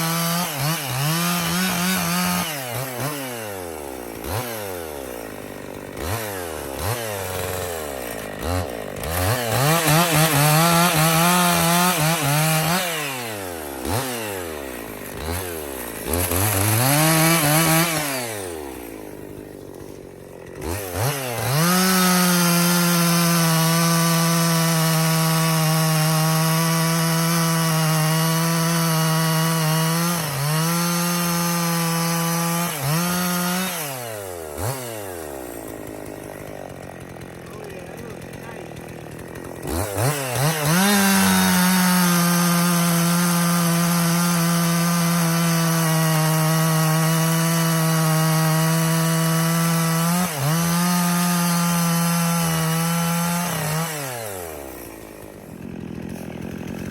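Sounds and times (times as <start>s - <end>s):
chainsaw revving and cutting log: 0.0s - 56.9s.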